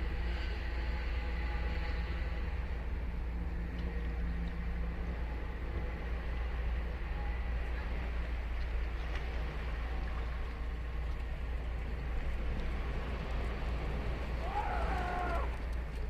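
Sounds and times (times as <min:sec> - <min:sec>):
ocean surf breaking: 0:12.4 - 0:16.0.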